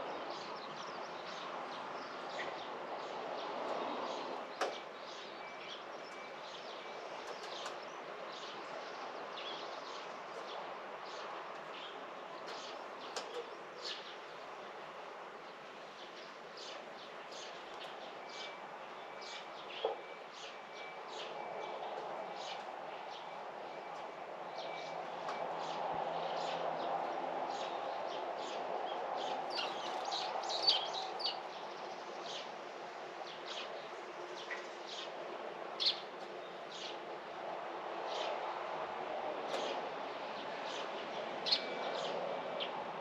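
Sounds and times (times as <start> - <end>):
small birds chirping: 28.4 - 32.5.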